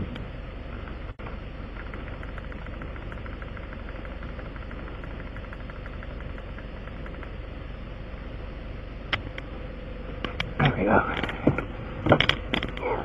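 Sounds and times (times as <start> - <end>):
vehicle engine idling: 0.0 - 13.0
rapid even ticking: 1.7 - 7.5.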